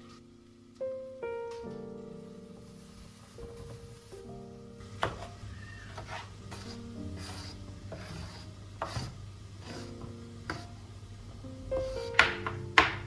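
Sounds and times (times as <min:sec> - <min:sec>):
soft piano music: 0:00.0 - 0:13.0
kitchen knocks and scraping: 0:04.8 - 0:10.9, 0:11.7 - 0:13.0.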